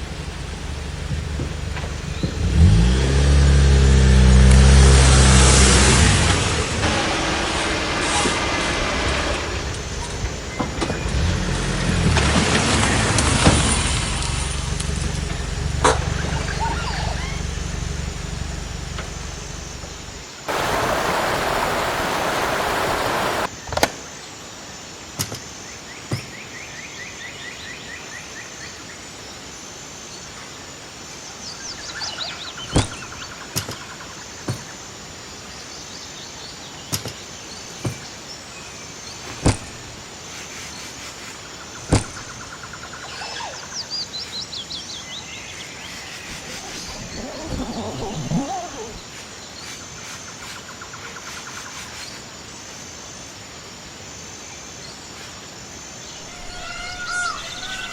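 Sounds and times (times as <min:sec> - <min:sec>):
loud rush of noise: 0:05.0 - 0:14.6, 0:20.1 - 0:23.5
birds chirping trills: 0:14.5 - 0:23.5, 0:41.5 - 0:49.7, 0:56.1 - 0:57.9
high insect drone: 0:37.4 - 0:57.9.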